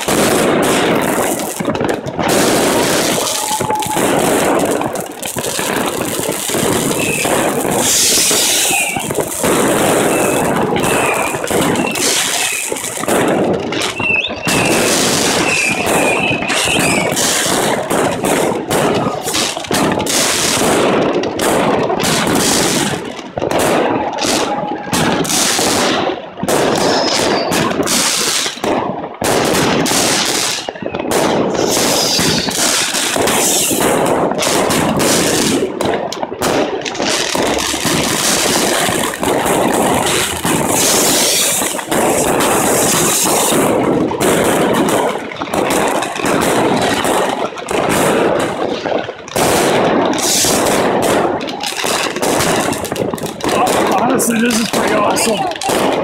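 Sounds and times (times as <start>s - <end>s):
fireworks bangs and crackling: 0.0s - 56.0s
firework whistles: 2.3s - 5.2s, 6.2s - 13.2s, 13.8s - 18.2s, 26.6s - 28.6s, 29.5s - 35.6s, 37.0s - 44.4s, 50.2s - 50.8s.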